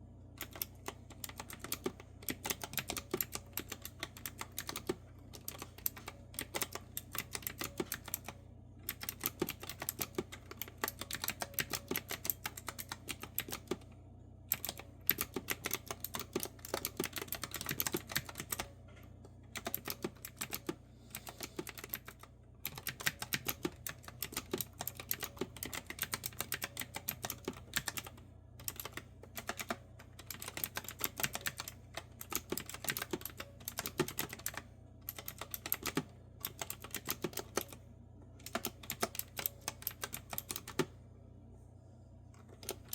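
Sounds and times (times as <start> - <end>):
faint steady hum: 0.0 - 42.9
mechanical keyboard typing: 0.4 - 13.9, 14.5 - 18.7, 19.5 - 37.8, 38.4 - 40.9, 42.4 - 42.9.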